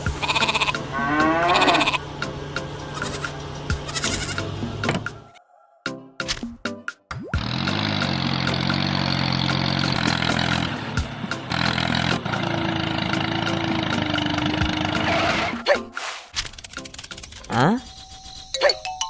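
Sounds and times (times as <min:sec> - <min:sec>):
vehicle engine running: 0:00.0 - 0:05.4, 0:07.4 - 0:15.6
background music: 0:00.0 - 0:19.0.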